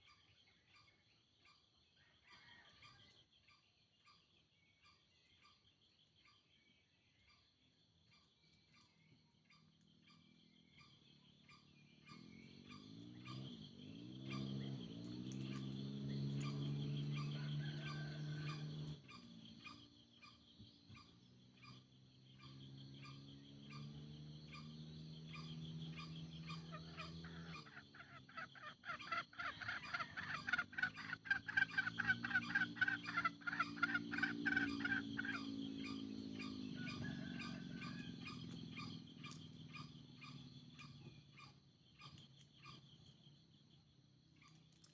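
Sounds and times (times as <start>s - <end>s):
high insect chorus: 0.3s - 44.9s
junglefowl calls: 16.3s - 21.8s, 22.4s - 42.8s.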